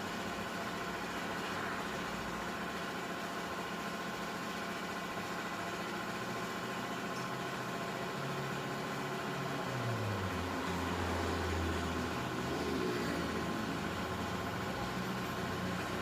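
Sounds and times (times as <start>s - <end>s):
car engine running: 5.1s - 16.0s.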